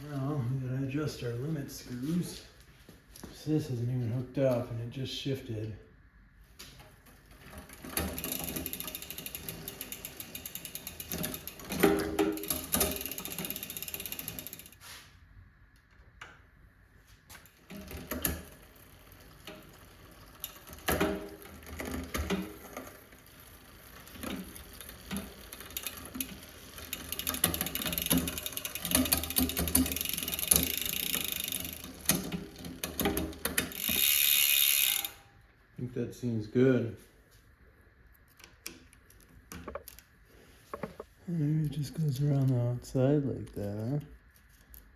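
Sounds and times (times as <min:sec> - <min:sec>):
bicycle chain running over cassette: 0:07.4 - 0:14.8, 0:17.7 - 0:35.2
freehub ratcheting clicks: 0:24.2 - 0:35.2.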